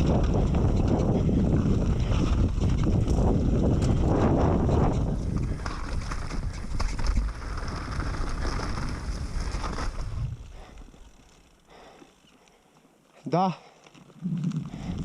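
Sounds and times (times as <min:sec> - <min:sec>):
wind buffeting microphone: 0:00.0 - 0:10.8, 0:14.2 - 0:15.0.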